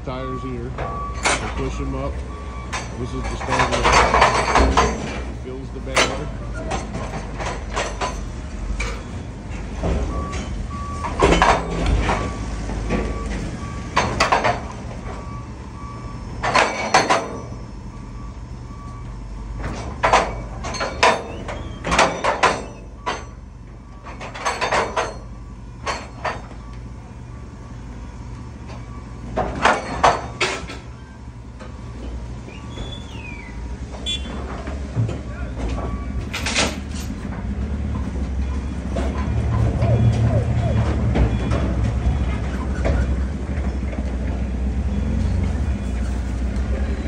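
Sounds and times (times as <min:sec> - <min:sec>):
tires thudding and clattering: 0:00.0 - 0:17.8, 0:19.5 - 0:27.0, 0:27.6 - 0:47.0
low machinery rumble: 0:00.0 - 0:47.0
backup alarm beeping: 0:00.1 - 0:04.9, 0:10.0 - 0:19.7, 0:20.3 - 0:30.5, 0:31.1 - 0:34.4, 0:35.2 - 0:36.3, 0:38.0 - 0:42.5.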